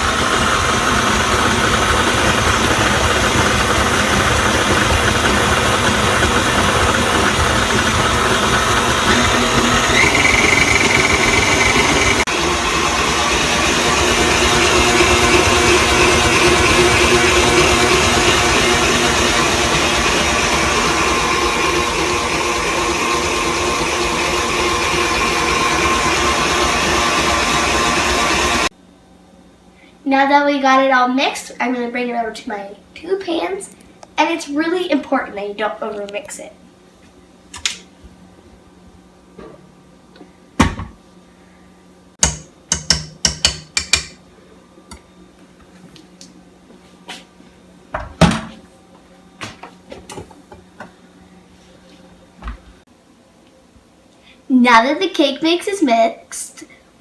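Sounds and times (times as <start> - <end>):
electric mixer motor running: 0.0 - 28.7.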